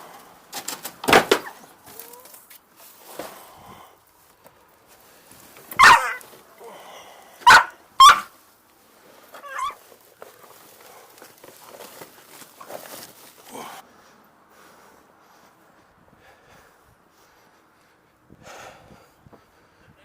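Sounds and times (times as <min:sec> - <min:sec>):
dog barking: 0:05.8 - 0:06.2, 0:07.4 - 0:08.3
dog yelping: 0:05.8 - 0:06.3, 0:07.4 - 0:08.3, 0:09.4 - 0:09.8.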